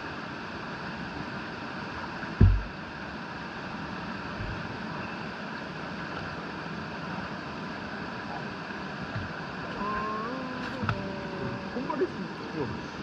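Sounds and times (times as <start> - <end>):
mountain stream rushing: 0.0 - 13.0
heavy low thump: 2.4 - 2.8.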